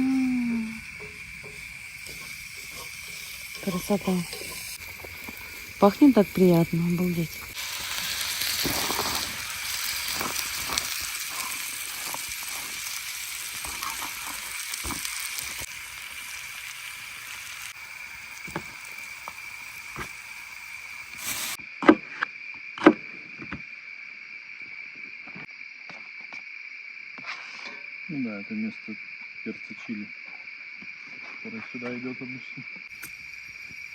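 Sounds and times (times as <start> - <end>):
meat sizzling on a grill: 0.0 - 21.6, 32.9 - 33.9
crickets chirring: 0.0 - 33.9.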